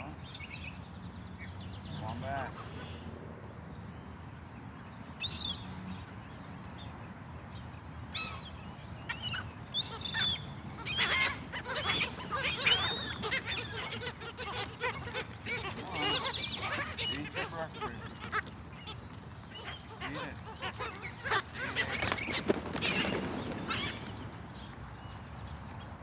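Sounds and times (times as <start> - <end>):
seagulls squawking: 9.2 - 24.3.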